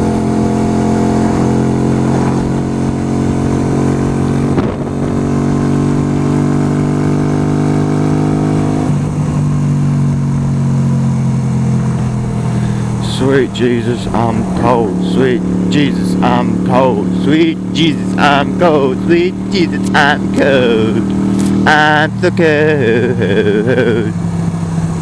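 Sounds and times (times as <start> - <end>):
motorcycle engine running: 0.0 - 25.0
wind rumble on microphone: 4.4 - 5.3.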